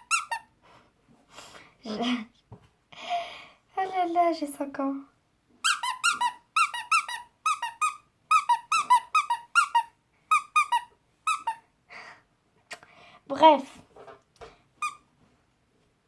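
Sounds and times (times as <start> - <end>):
rubber squeeze toy squeaking: 0.0 - 0.5, 5.6 - 11.6, 14.8 - 15.1.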